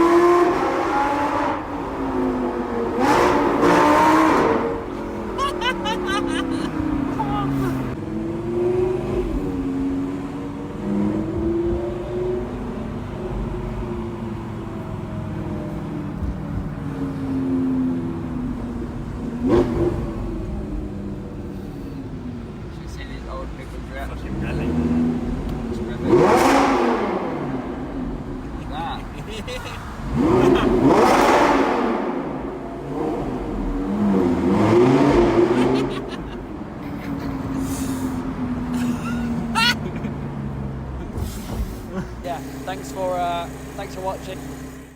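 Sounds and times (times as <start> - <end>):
sports car engine accelerating: 0.0 - 44.9
car engine running: 27.0 - 44.9.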